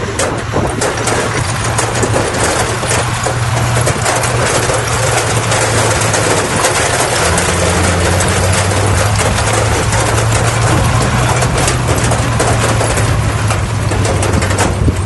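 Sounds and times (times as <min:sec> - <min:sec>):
bulldozer diesel engine droning: 0:00.0 - 0:15.0
clatter of small clicks and clanks: 0:00.0 - 0:15.0.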